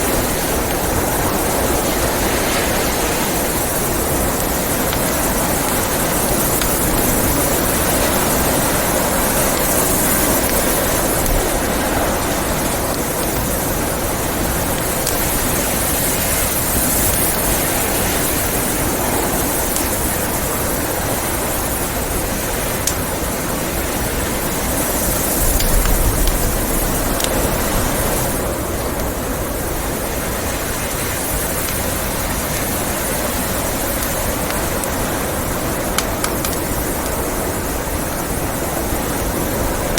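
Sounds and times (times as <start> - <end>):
blizzard wind: 0.0 - 39.9
fireplace crackling: 0.0 - 39.9.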